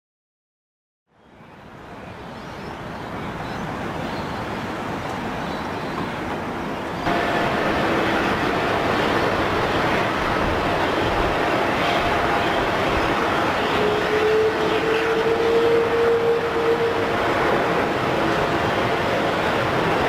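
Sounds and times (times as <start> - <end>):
jet engine whine: 7.1 - 20.0
jet engines rushing: 7.1 - 20.0.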